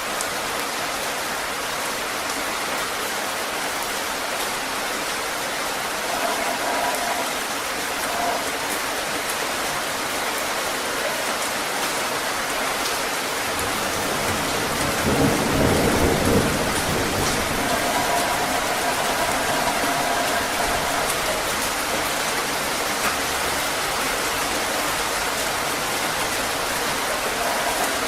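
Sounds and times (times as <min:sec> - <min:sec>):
heavy rain: 0:00.0 - 0:28.0
low roll of thunder: 0:13.6 - 0:21.6.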